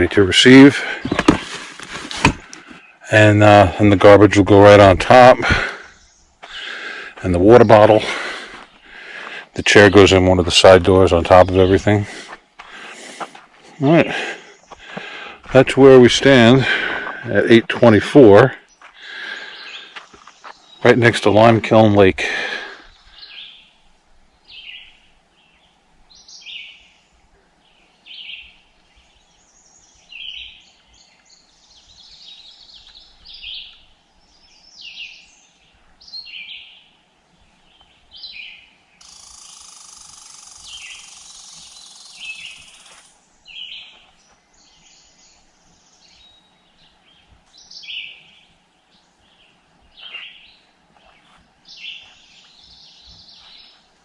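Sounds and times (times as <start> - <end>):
steady hiss: 18.2 - 54.0
bird calling: 37.6 - 53.9.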